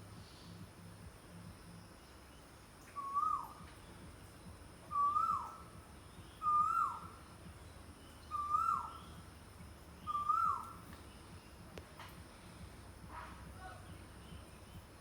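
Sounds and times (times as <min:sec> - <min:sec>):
bird whistling call: 0:03.0 - 0:03.6, 0:04.9 - 0:05.6, 0:06.4 - 0:07.2, 0:08.3 - 0:09.1, 0:10.1 - 0:10.8.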